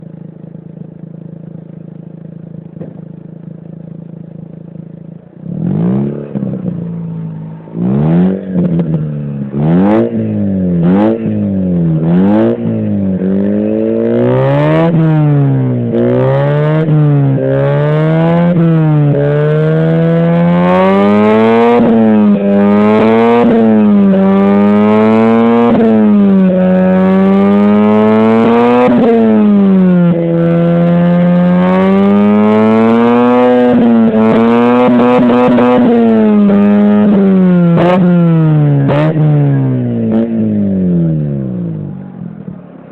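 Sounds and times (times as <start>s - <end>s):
rotary engine idling: 0.0s - 5.5s
engine revving: 5.2s - 42.9s.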